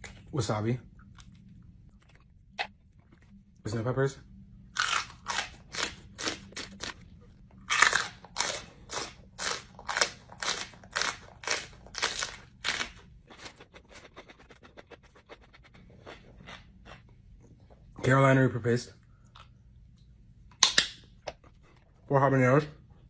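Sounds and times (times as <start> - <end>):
person chewing crunchy food: 1.0 - 3.4, 4.7 - 17.7.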